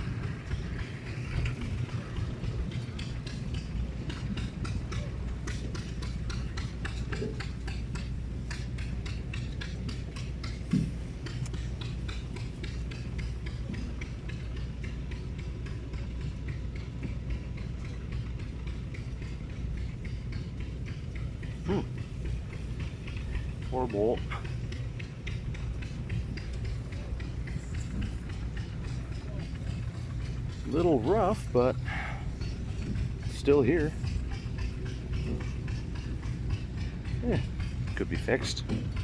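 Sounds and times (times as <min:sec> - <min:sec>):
engine humming: 0:00.0 - 0:39.0.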